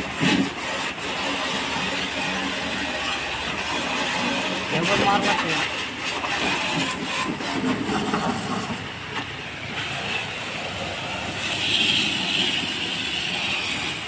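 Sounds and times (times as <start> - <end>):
tractor running: 0.0 - 14.0
hiss: 9.8 - 14.0.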